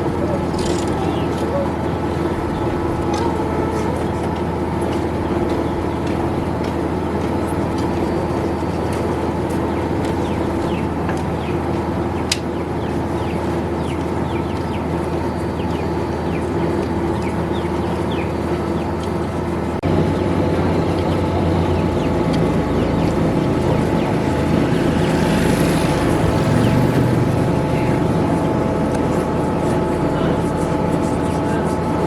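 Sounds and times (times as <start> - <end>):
machine hum: 0.0 - 32.0.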